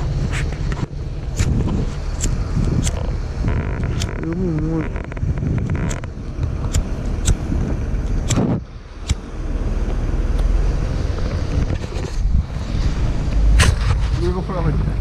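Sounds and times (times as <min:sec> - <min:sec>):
car engine rumbling: 0:00.0 - 0:15.0
sharp clicks and knocks: 0:00.3 - 0:09.2.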